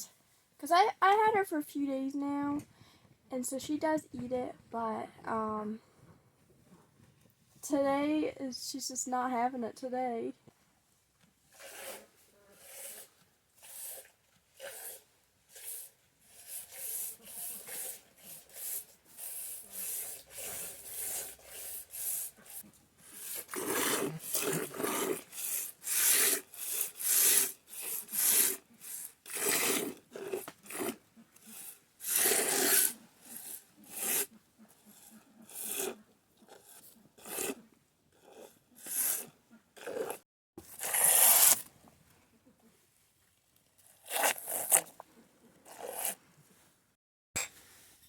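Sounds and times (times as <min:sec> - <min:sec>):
milk squirting into pail: 0:23.1 - 0:34.2.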